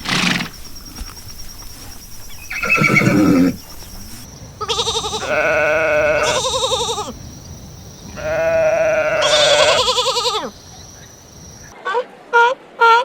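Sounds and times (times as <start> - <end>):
animal bleating: 2.5 - 3.6, 4.6 - 7.2, 8.1 - 10.5.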